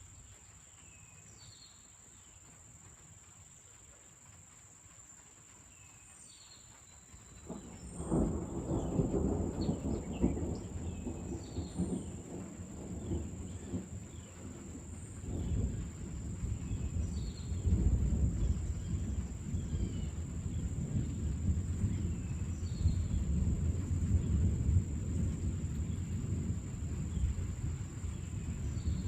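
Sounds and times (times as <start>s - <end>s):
deep rolling thunder: 7.3s - 29.0s.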